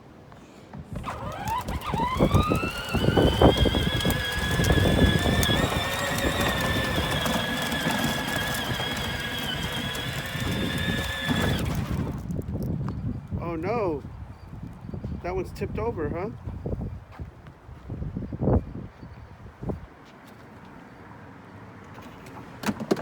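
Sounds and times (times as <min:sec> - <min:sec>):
wind buffeting: 0:00.8 - 0:19.8
toy electric motor whining: 0:00.9 - 0:12.3.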